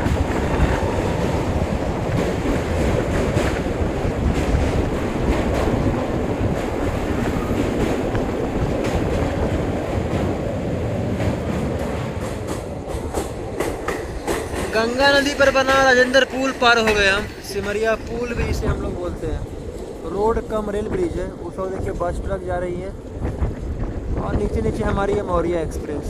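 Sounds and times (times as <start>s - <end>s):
train wheels rumbling on bridge: 0.0s - 26.0s.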